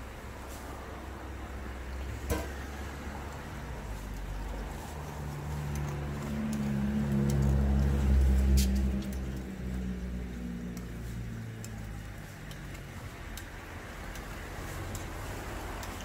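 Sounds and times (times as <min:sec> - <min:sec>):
cakes frying in oil: 0:00.0 - 0:16.0
metal tongs clicking: 0:10.7 - 0:15.1.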